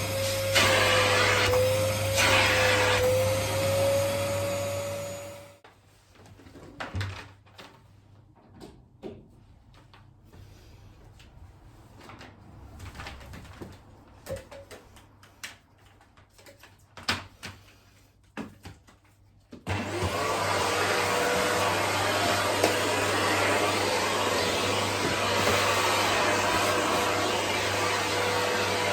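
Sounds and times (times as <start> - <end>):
vacuum cleaner running: 0.0 - 5.6, 19.7 - 28.9.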